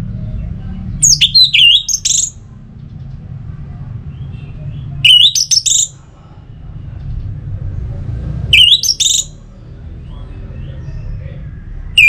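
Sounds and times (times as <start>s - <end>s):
low steady rumble: 0.0s - 5.1s
thrush whistled song: 1.0s - 2.4s, 5.0s - 6.0s, 8.5s - 9.4s.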